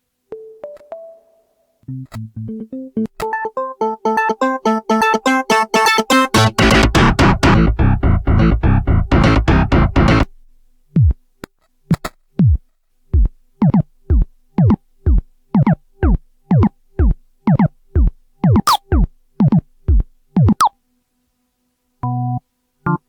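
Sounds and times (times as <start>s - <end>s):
synthesizer percussive hits: 5.5s - 10.2s, 13.2s - 20.7s.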